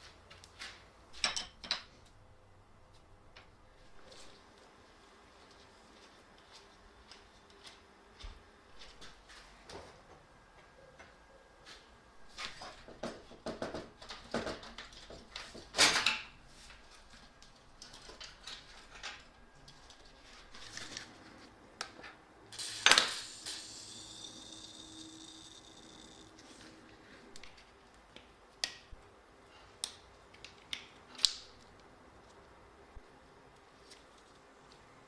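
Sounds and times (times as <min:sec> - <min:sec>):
faint steady hum: 0:00.0 - 0:35.0
metal tools clinking and knocking: 0:01.2 - 0:01.9.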